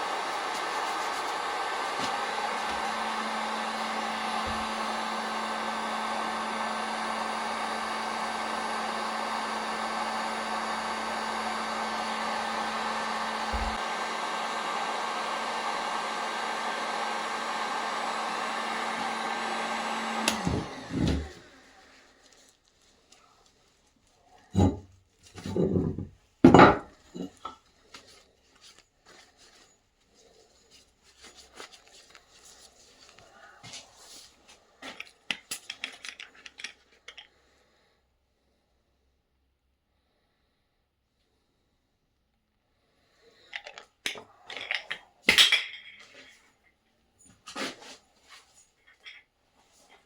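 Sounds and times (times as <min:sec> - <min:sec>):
power tool motor running: 0:00.0 - 0:21.6.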